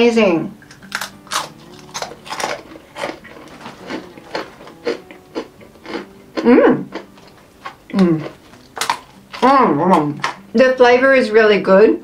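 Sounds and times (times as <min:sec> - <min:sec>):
crunchy snack being chewed: 0:00.6 - 0:10.4
person humming: 0:03.6 - 0:06.9, 0:07.9 - 0:08.4.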